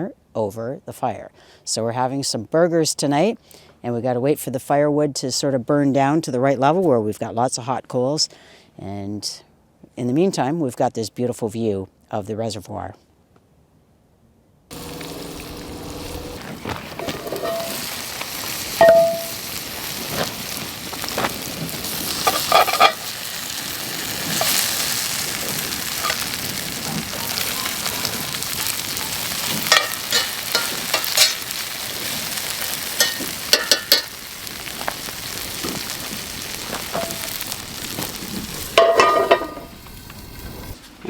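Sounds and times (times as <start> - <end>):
campfire hissing and crackling: 14.7 - 41.0.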